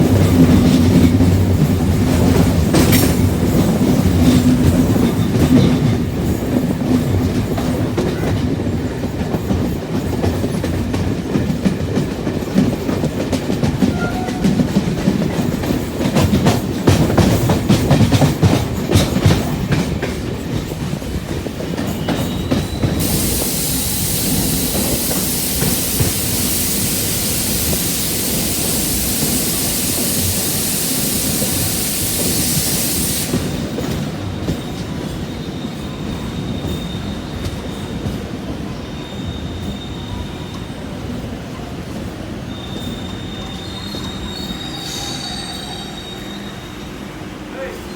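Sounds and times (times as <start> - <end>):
train wheels clattering: 0.0 - 47.9
steady high hiss: 23.0 - 33.8.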